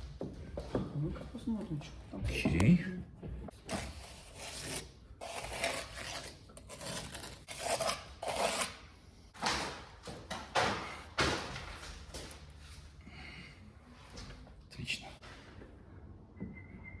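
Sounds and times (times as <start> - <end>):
trowel scraping: 3.7 - 8.9.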